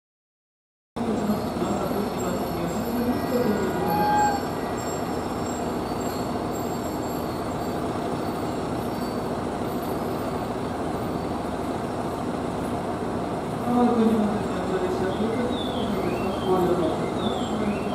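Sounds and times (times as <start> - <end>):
railcar approaching: 1.0 - 17.9
brief high tone: 3.1 - 5.1.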